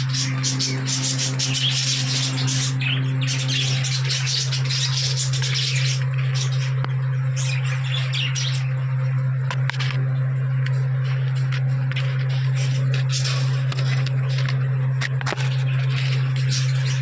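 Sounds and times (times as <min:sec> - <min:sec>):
budgerigars chirping and chattering: 0:00.0 - 0:08.8, 0:12.0 - 0:14.6, 0:15.3 - 0:17.0
steady low hum: 0:00.0 - 0:17.0.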